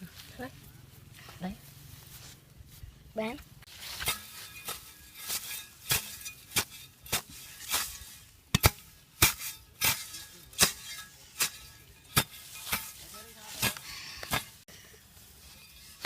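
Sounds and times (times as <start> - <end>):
hand tool chopping strikes: 3.9 - 14.6.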